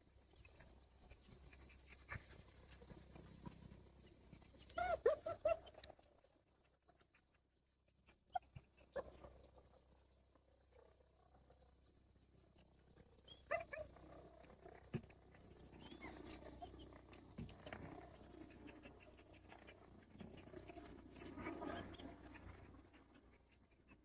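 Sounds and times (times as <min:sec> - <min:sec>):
dog whining: 0:04.7 - 0:05.8, 0:15.7 - 0:16.9, 0:20.4 - 0:22.4
dog panting: 0:15.7 - 0:24.0.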